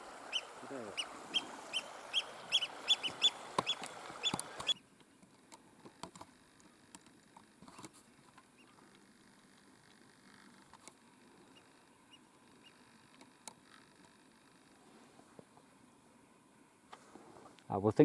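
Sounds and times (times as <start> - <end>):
wading bird alarm calls: 0.0 - 4.8
faint clicks: 2.6 - 11.0.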